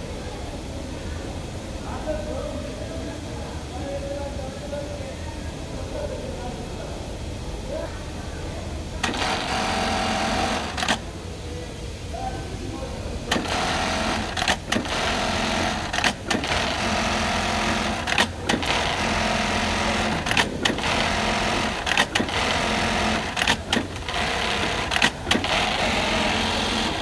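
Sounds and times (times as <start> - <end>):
sewing machine running: 9.0 - 11.0, 13.3 - 27.0
sewing machine sharp clicks: 9.0 - 11.0, 13.3 - 27.0.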